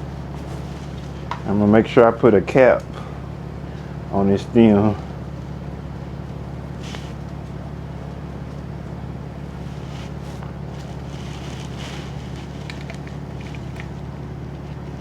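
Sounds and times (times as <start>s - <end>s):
low mechanical hum: 0.0s - 15.0s
faint light clicks and rustles: 9.8s - 15.0s.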